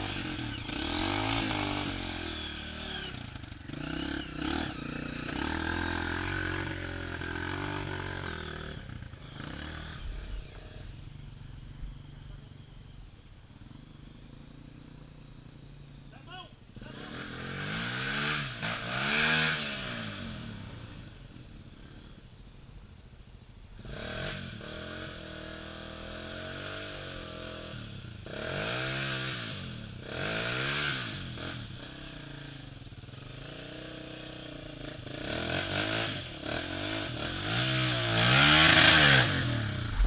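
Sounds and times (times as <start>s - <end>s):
motorcycle engine revving: 0.0s - 22.4s, 23.8s - 40.0s.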